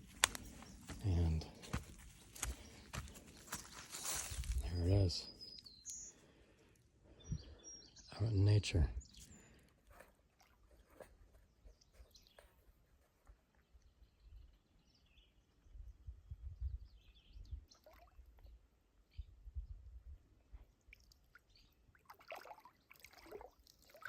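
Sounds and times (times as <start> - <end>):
faint bird chirps: 4.0 - 6.3.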